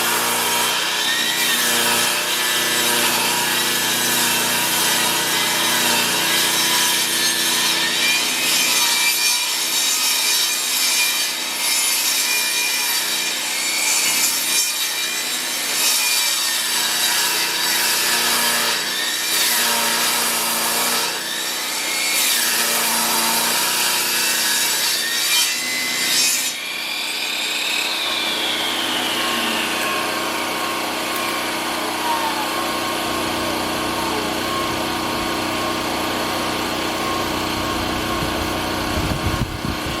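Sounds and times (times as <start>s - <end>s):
table saw cutting wood: 0.0s - 40.0s
saw running unloaded hum: 25.6s - 40.0s.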